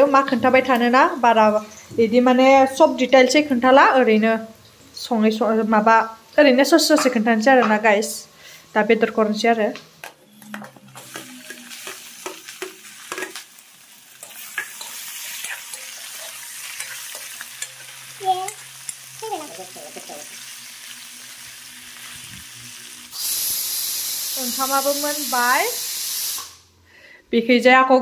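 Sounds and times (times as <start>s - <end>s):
meat sizzling in oil: 10.9s - 26.6s
pressure cooker steam hiss: 14.2s - 26.7s.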